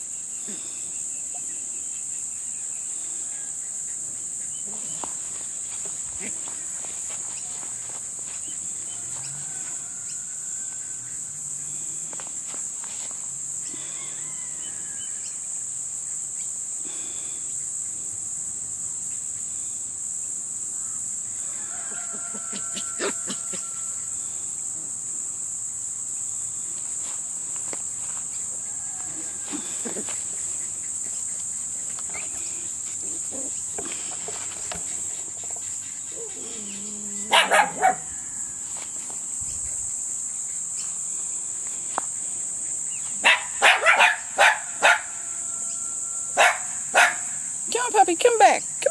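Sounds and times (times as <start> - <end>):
puppies barking: 37.3 - 38.1, 43.2 - 45.1, 46.4 - 47.3.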